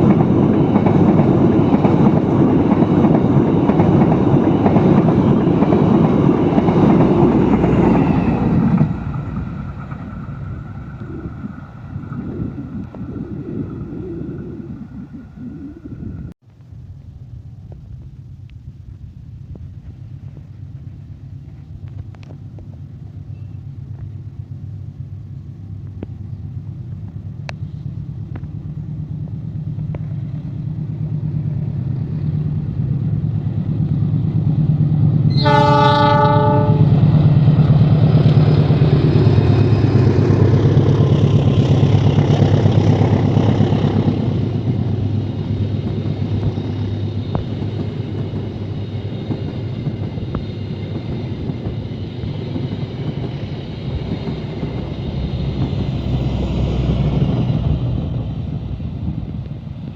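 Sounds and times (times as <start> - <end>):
diesel locomotive rumble: 0.0 - 59.9
train wheel and carriage noise: 0.0 - 59.9
train horn blast: 35.3 - 37.1.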